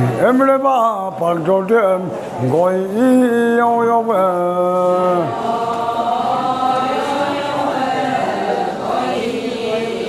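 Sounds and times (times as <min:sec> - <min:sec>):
chorus chanting: 0:01.2 - 0:10.0.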